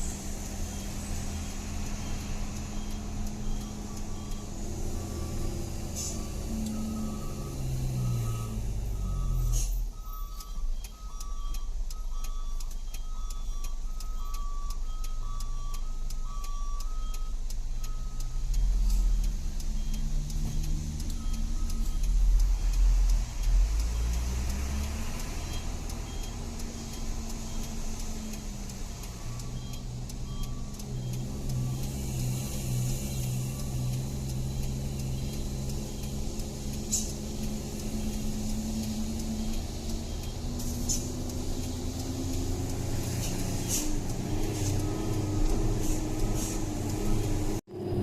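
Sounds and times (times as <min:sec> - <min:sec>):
truck engine running: 0:00.0 - 0:48.0.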